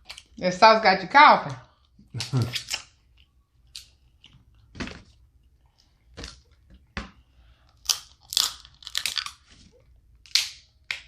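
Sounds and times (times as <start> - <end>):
crab shells cracking: 7.8 - 9.4.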